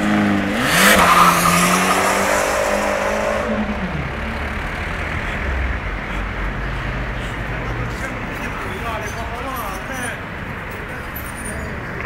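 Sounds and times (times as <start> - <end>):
car engine pulling away: 0.0 - 8.1
road noise: 0.0 - 12.0.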